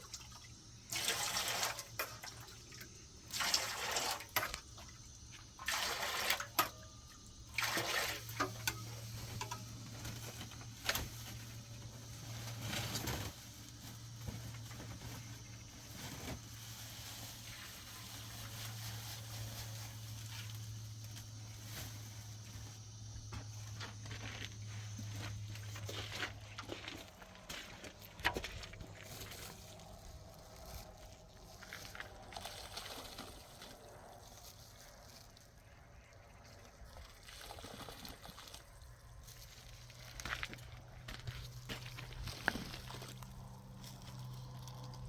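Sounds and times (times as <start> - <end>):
water splashing and pouring: 0.0 - 9.1, 31.8 - 33.8, 36.2 - 38.7.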